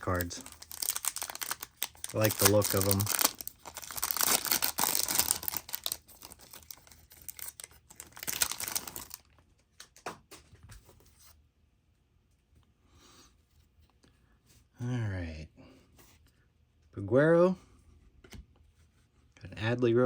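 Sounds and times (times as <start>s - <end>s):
wrapper crinkling and tearing: 0.0s - 9.3s.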